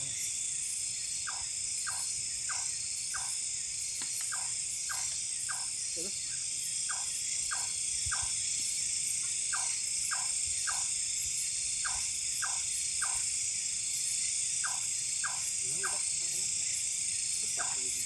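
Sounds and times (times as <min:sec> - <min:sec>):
crickets and insects chirring: 0:00.0 - 0:18.0
frogs calling: 0:00.0 - 0:18.0.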